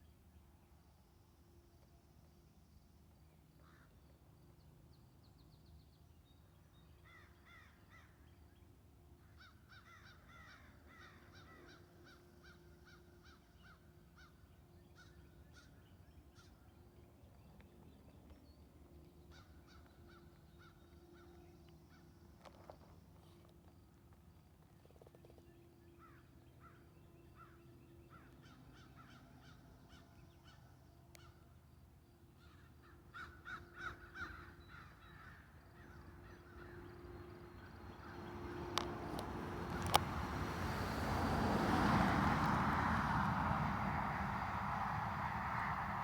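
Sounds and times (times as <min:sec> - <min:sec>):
faint birds calling: 0:09.2 - 0:23.8, 0:24.7 - 0:31.6, 0:32.2 - 0:40.4.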